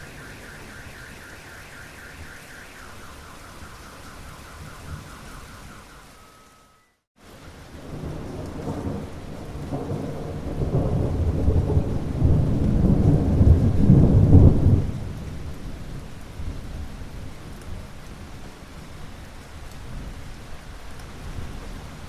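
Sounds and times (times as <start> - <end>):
rolling thunder: 0.0 - 6.0, 7.6 - 17.4
rain falling: 0.0 - 22.0.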